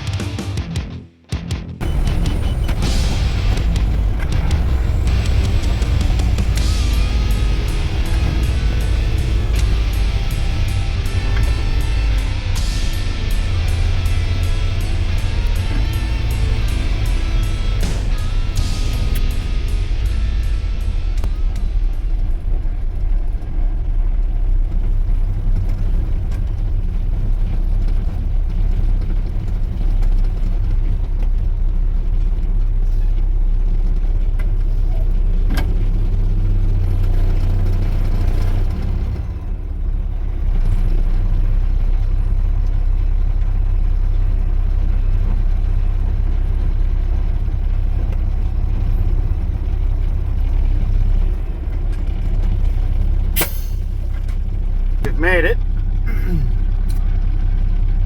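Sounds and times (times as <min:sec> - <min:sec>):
heavy diesel truck engine drone: 0:01.8 - 0:58.0.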